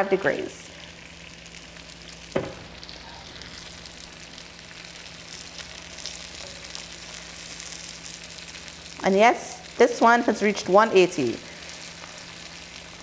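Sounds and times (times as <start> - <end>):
chicken sizzling in a skillet: 0.0 - 13.0
short knock: 2.4 - 2.8.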